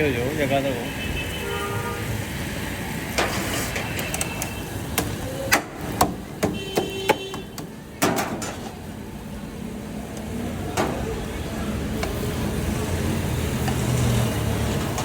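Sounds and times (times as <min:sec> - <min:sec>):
street noise: 0:00.0 - 0:15.0
sharp irregular knocks: 0:05.0 - 0:08.6.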